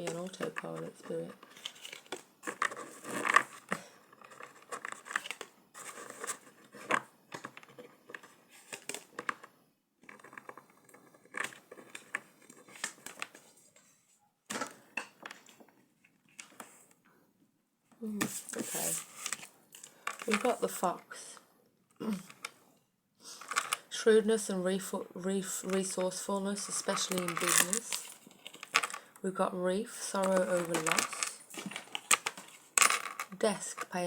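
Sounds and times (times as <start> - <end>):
cards being shuffled: 25.6 - 29.1, 30.2 - 34.0.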